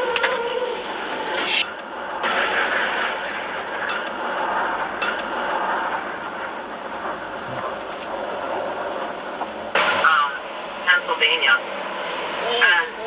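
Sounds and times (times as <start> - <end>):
thin high whine: 0.0 - 10.4
faint ticks: 0.1 - 9.8.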